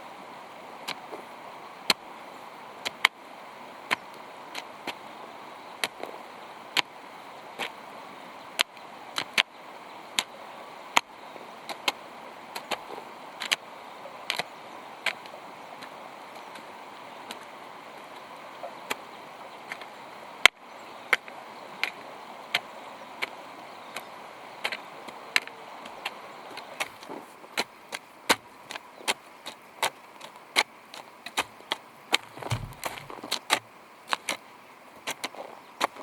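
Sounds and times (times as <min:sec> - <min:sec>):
hand hoe chopping into soil: 0:32.1 - 0:33.6.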